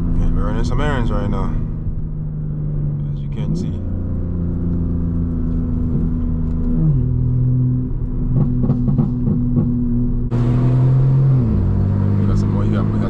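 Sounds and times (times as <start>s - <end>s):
car engine cruising: 0.0s - 13.0s
exhaust pops: 4.5s - 10.3s.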